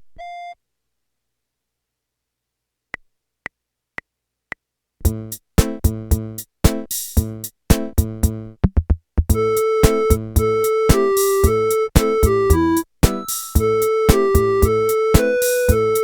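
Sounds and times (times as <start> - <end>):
keyboard drum-machine accompaniment: 5.0 - 8.5, 9.3 - 16.0
keyboard melody line: 9.3 - 16.0
count-in clicks: 9.4 - 16.0.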